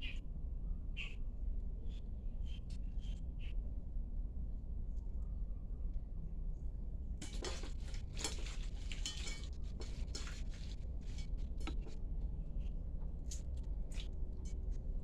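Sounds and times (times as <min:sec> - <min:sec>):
utensils clinking on dishes: 0:07.2 - 0:11.9.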